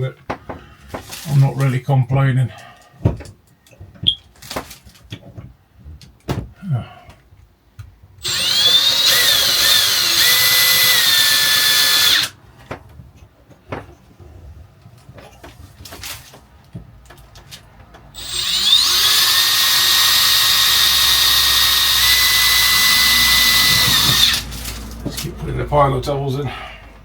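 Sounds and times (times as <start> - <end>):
power drill whining: 8.2 - 12.4, 18.2 - 25.2.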